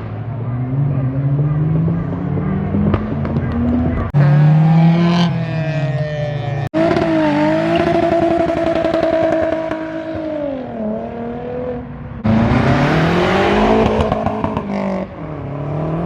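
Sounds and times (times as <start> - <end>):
car engines revving: 0.0 - 16.0
car accelerating hard: 6.7 - 16.0.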